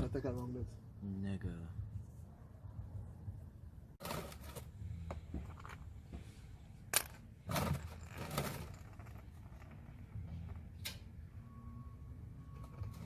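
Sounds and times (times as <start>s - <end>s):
wrench scraping rustles: 7.0s - 10.7s.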